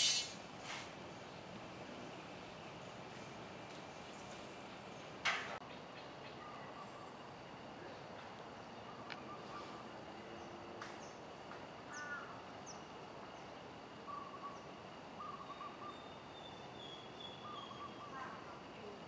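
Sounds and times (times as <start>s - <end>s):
bird calls: 0.0s - 0.4s, 8.7s - 9.8s, 11.9s - 12.8s, 14.0s - 18.6s
high chirps: 0.0s - 0.4s
background hiss: 0.0s - 0.8s.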